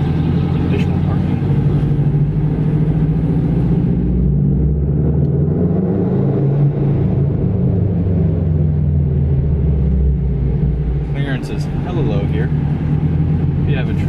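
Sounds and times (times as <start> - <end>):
car engine low drone: 0.0 - 14.0
road rumble: 0.0 - 14.0.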